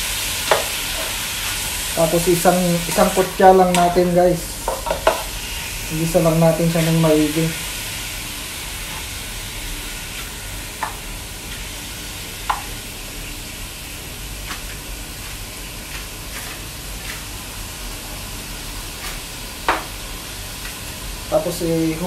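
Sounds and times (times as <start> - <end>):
meat sizzling in a pot: 0.0 - 22.0
spatula stirring: 14.4 - 17.4.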